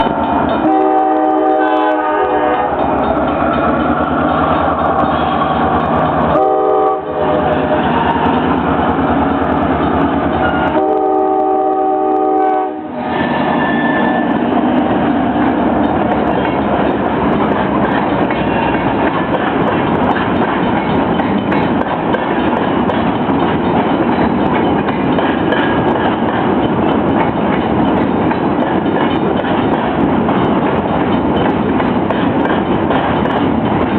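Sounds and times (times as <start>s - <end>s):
train wheels clacking on rails: 0.0s - 33.9s
train horn blasts: 0.6s - 2.9s, 6.3s - 8.4s, 10.4s - 13.0s.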